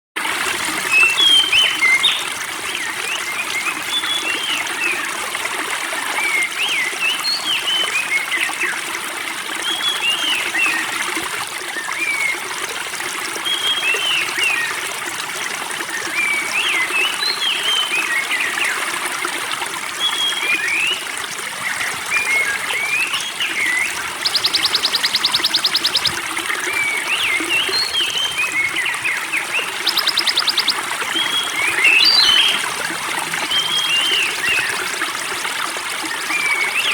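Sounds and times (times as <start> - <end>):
water trickling: 0.3 - 36.9
songbirds chirping: 0.9 - 2.3, 23.0 - 34.8.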